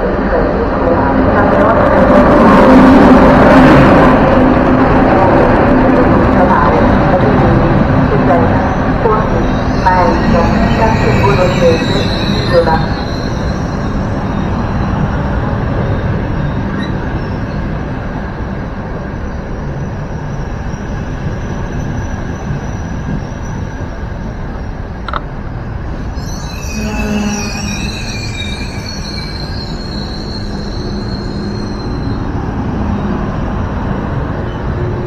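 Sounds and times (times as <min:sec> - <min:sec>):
train wheels rumbling on rails: 0:00.0 - 0:35.0
high-pitched wheel squeal: 0:09.4 - 0:14.9, 0:26.1 - 0:32.4.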